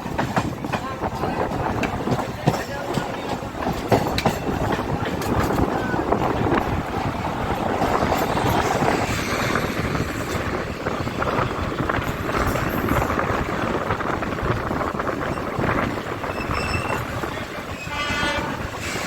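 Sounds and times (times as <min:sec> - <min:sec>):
wheels rattling and clicking: 0:00.0 - 0:17.8
train rumbling along track: 0:00.0 - 0:19.0.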